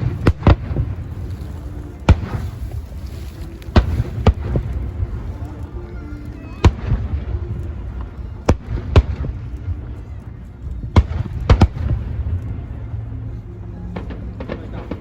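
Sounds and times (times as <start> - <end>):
fireworks bangs: 0.0 - 2.8, 3.7 - 5.1
steady low rumble: 0.0 - 15.0.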